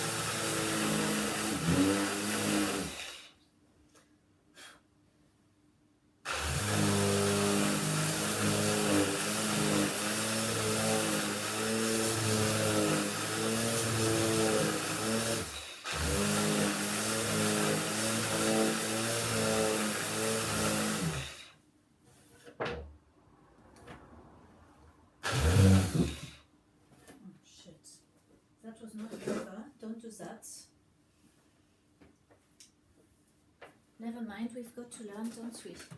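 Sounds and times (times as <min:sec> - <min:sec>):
electric sander on wood: 0:00.0 - 0:03.2, 0:06.3 - 0:21.4, 0:25.2 - 0:26.4.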